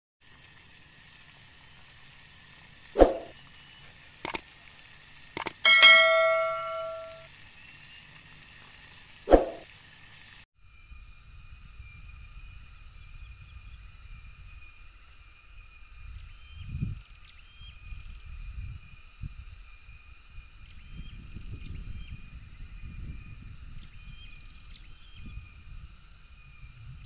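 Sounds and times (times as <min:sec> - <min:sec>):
steady hiss: 0:00.2 - 0:10.4
sharp clicks: 0:04.2 - 0:04.5, 0:05.4 - 0:06.2
metallic bell-like chime: 0:05.6 - 0:07.3.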